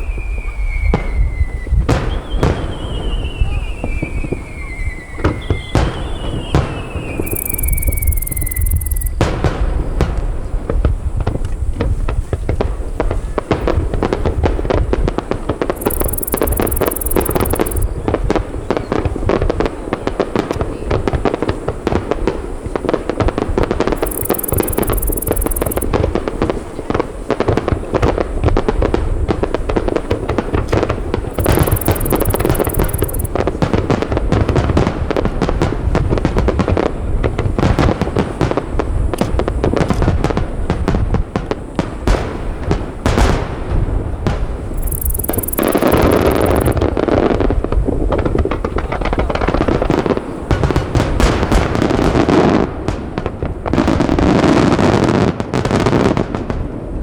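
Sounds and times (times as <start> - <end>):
high crackling hiss: 6.0 - 9.2, 14.9 - 18.6, 19.7 - 33.6, 36.9 - 55.9.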